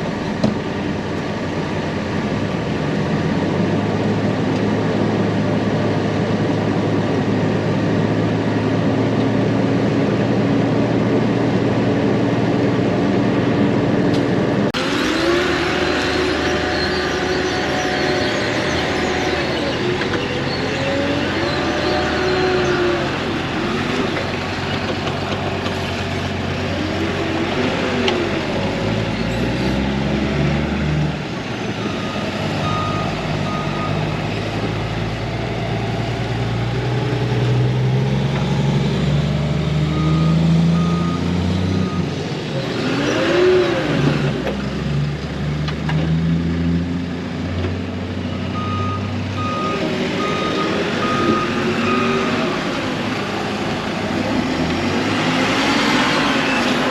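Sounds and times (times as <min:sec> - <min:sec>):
heavy vehicle engine running: 0:00.0 - 0:56.9
reversing alarm beeping: 0:31.8 - 0:34.2, 0:39.8 - 0:42.1, 0:48.3 - 0:52.7.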